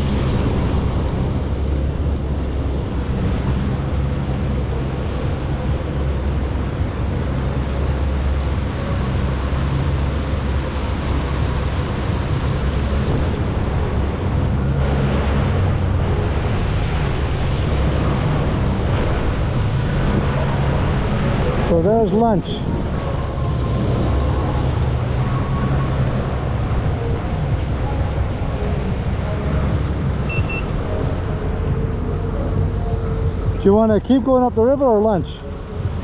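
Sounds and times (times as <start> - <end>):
jet ski engine running: 0.0 - 36.0
water rushing around hull: 0.0 - 36.0.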